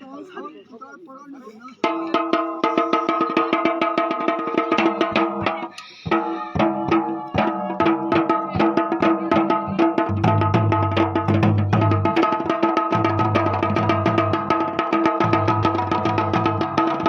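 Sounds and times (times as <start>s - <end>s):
fast drumming: 1.8s - 17.0s.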